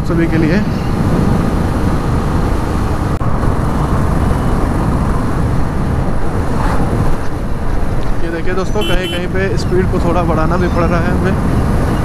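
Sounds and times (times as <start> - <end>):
wind rushing: 0.0 - 8.2
motorcycle engine cruising: 0.0 - 12.0.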